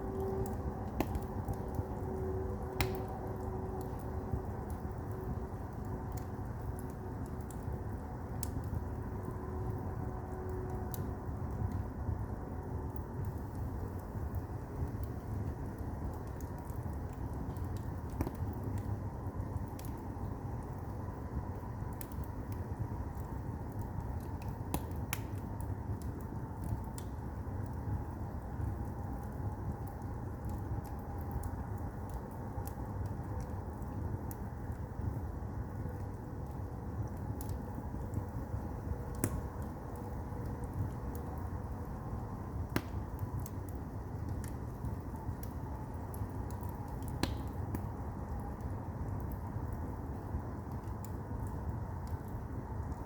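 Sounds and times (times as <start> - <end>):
fire crackles and pops: 0.0 - 53.0
firewood burning rumble: 0.0 - 53.0
burning wood popping: 37.0 - 53.0.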